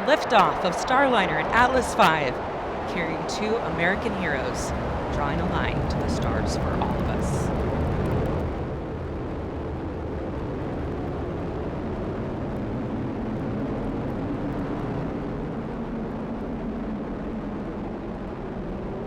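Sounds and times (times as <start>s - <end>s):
rocket engines rumbling: 0.0s - 11.9s.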